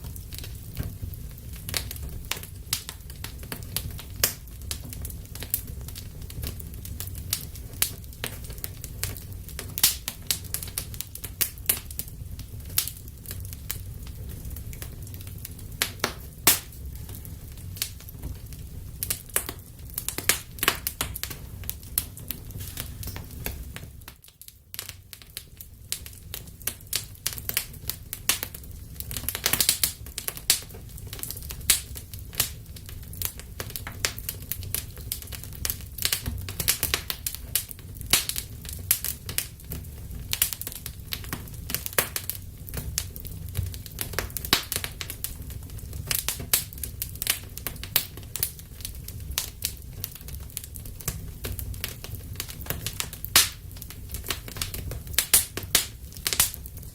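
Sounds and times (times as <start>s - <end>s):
crackling wood pops and snaps: 0.0s - 56.9s
low rumble of flames: 0.0s - 56.9s.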